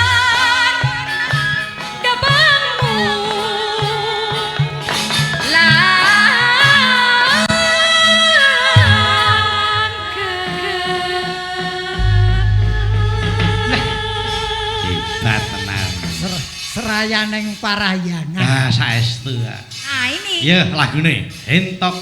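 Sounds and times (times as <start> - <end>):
instrumental accompaniment with beat: 0.0 - 10.8, 11.9 - 17.6
person singing with vibrato: 10.0 - 16.8
deep low note: 12.0 - 16.8.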